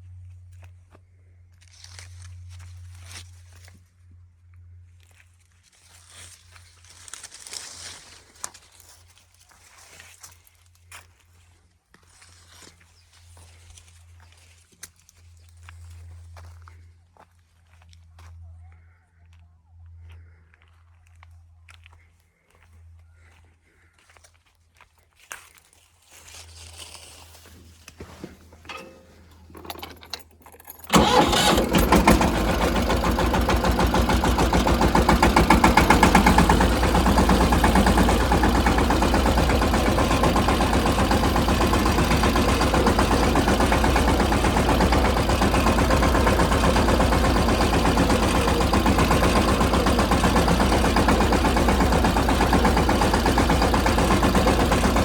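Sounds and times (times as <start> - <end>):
tractor diesel engine running: 28.0 - 55.0.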